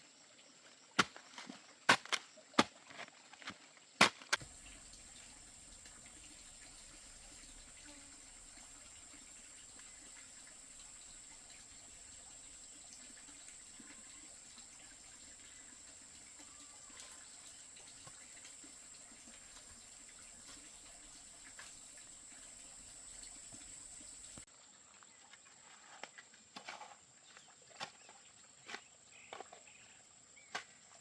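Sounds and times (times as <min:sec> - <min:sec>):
faint rushing water: 0:04.4 - 0:24.5.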